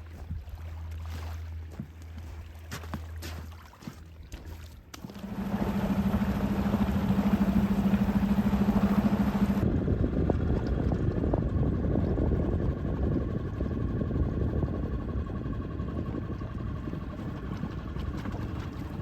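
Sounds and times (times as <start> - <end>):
boat motor droning: 0.0 - 19.0
water: 0.0 - 19.0
wind noise: 5.7 - 19.0.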